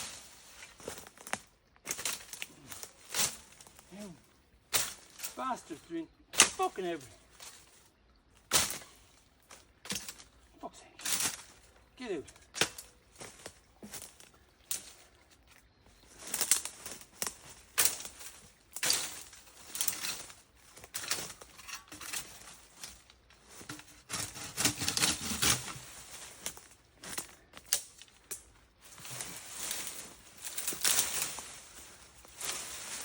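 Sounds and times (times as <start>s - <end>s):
plants rustling and snapping: 0.0s - 5.7s, 8.4s - 10.3s, 11.0s - 33.0s.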